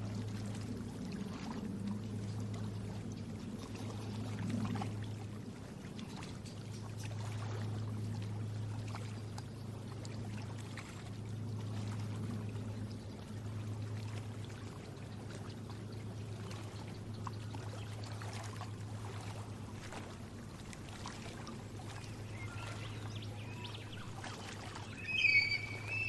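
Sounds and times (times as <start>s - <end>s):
steady low hum: 0.0s - 26.0s
water trickling and splashing: 0.0s - 26.0s
water drips: 13.0s - 26.0s.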